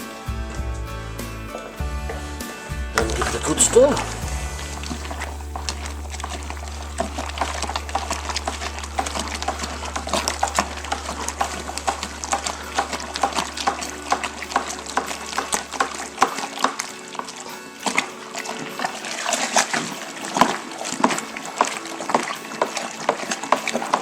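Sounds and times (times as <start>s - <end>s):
liquid sloshing: 0.0s - 24.0s
steady low hum: 4.0s - 14.0s.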